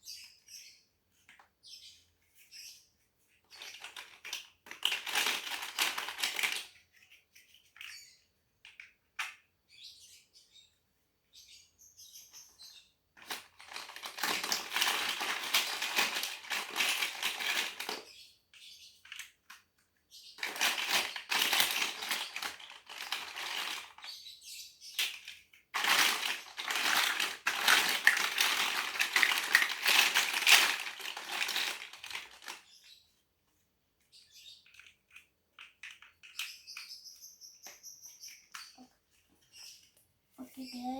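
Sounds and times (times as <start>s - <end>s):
plastic bricks clattering: 3.3s - 9.4s, 13.2s - 24.2s, 25.0s - 32.8s, 34.7s - 36.9s.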